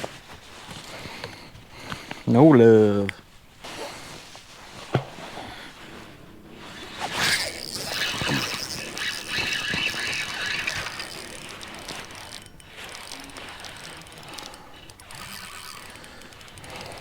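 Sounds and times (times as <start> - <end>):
fishing reel whirring click: 6.7 - 17.0.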